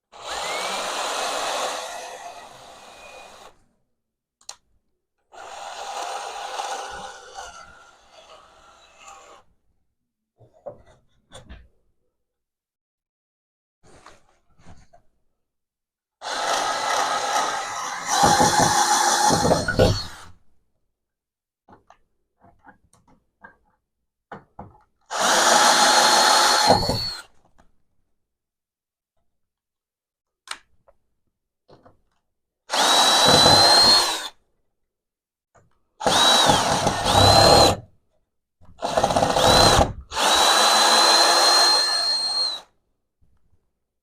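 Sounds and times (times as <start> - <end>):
power drill whining: 0.1 - 3.6, 5.3 - 9.4, 16.2 - 20.4, 25.1 - 27.3, 32.7 - 34.4, 36.0 - 37.8, 38.8 - 42.7.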